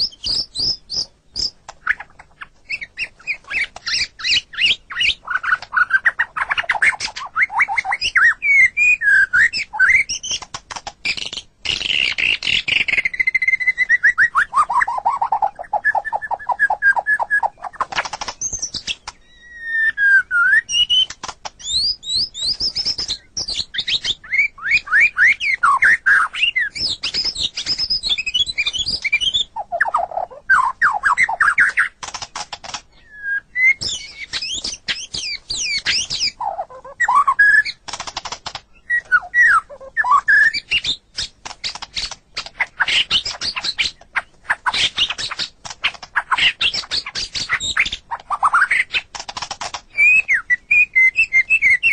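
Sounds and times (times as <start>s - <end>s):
bird singing whistled phrases: 0.0s - 2.0s, 2.6s - 10.4s, 11.1s - 17.8s, 18.4s - 31.9s, 32.9s - 37.8s, 38.7s - 41.3s, 49.9s - 51.9s
dry rapid clicking rattles: 32.0s - 32.9s, 37.8s - 38.7s, 49.0s - 49.9s.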